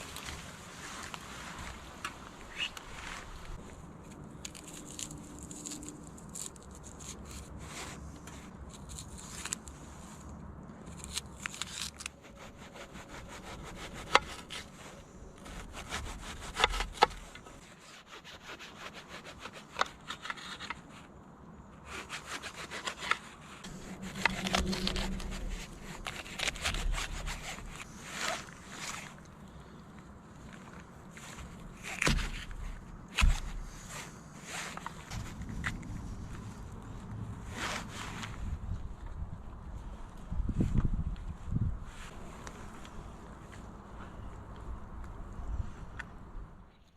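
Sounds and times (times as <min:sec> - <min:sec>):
hand saw rasping through wood: 0:12.2 - 0:20.8, 0:21.8 - 0:29.0.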